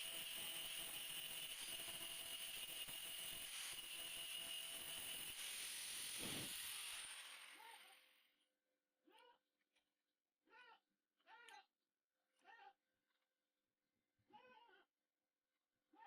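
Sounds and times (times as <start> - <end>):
welding arc crackling and hissing: 4.9 - 7.3.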